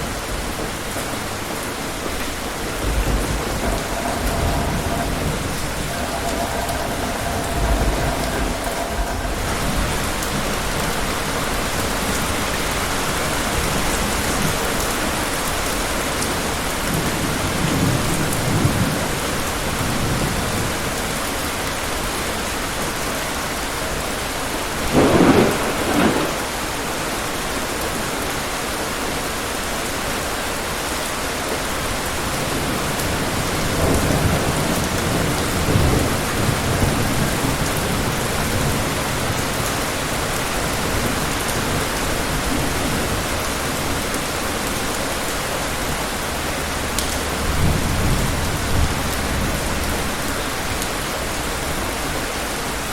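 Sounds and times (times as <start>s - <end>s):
low thunder rumbling: 0.0s - 22.2s, 24.7s - 28.2s, 31.8s - 52.0s
heavy rain falling: 0.0s - 52.9s
sharp thunderclap: 0.4s - 13.0s, 24.8s - 27.3s.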